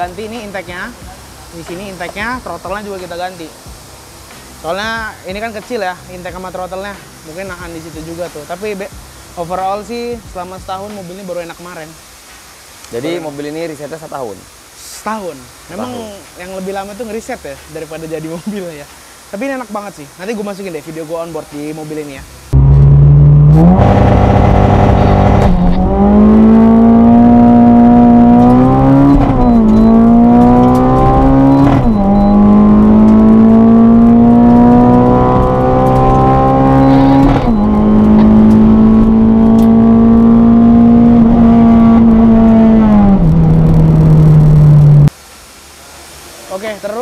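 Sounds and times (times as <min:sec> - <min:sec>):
car engine accelerating hard: 0:22.5 - 0:45.1.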